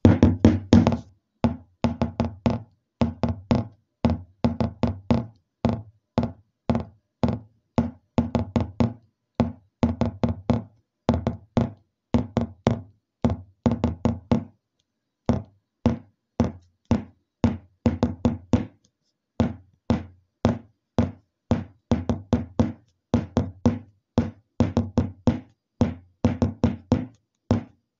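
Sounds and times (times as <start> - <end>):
rhythmic knocking: 0.0 - 1.0, 15.3 - 18.7, 19.4 - 27.7.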